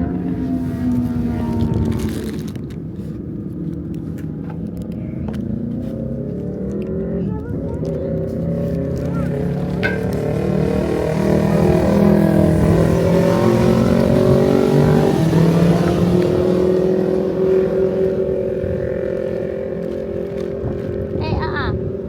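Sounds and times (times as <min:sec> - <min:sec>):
motorcycle engines racing: 0:00.0 - 0:22.0.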